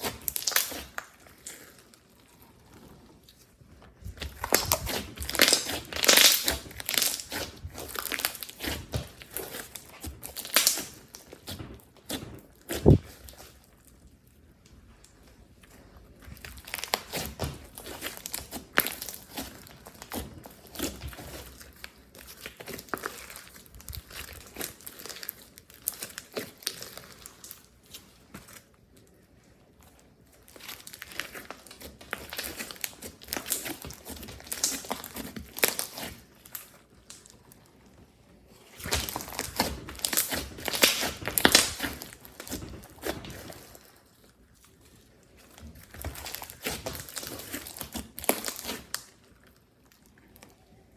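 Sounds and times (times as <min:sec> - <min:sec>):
slime squishing with sticky pops: 0:00.0 - 0:50.9.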